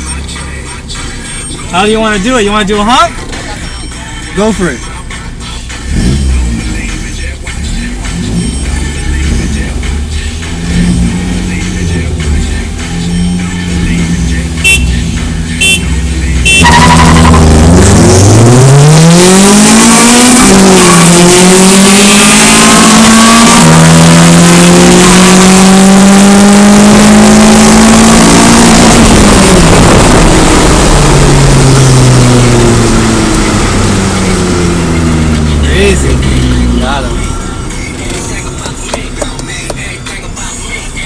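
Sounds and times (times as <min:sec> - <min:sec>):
car engine idling and revving: 0:00.0 - 0:41.0.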